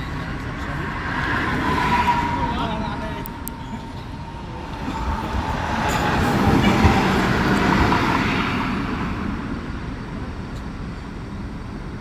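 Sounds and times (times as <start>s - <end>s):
road vehicle passing: 0.0s - 10.4s.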